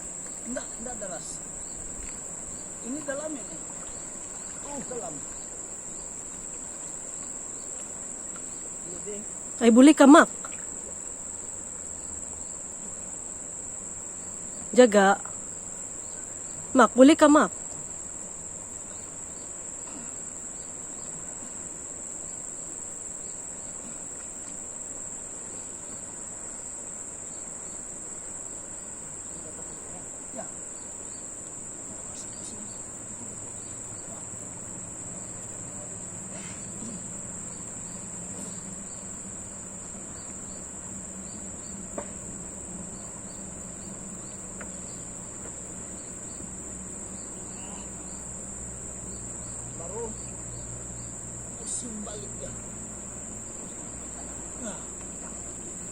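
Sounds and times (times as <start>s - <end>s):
crickets trilling: 0.0s - 55.9s
faint knocks: 41.9s - 42.3s.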